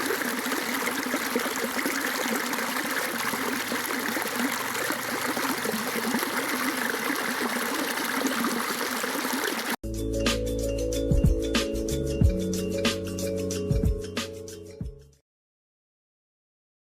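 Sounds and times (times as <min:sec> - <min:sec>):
water babbling and trickling: 0:00.0 - 0:09.8
music: 0:09.8 - 0:15.2.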